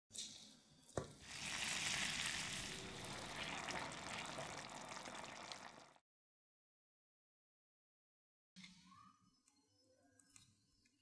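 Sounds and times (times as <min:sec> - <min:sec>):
sauce sizzling in a pan: 0:01.2 - 0:06.0.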